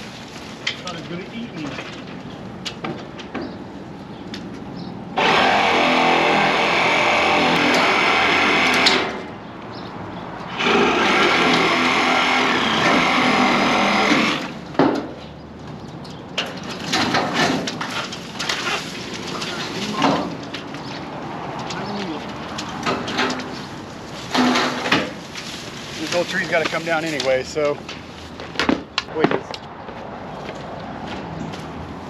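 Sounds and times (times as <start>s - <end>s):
power saw cutting tree limbs: 5.2s - 9.3s, 10.5s - 14.6s, 24.2s - 27.8s.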